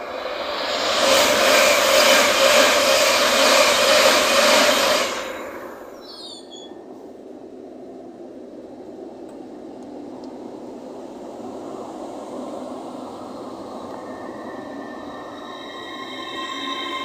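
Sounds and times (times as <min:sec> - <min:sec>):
slow train running noise: 0:00.0 - 0:17.0
train passing at speed: 0:00.0 - 0:17.0
high squeals: 0:13.9 - 0:17.0.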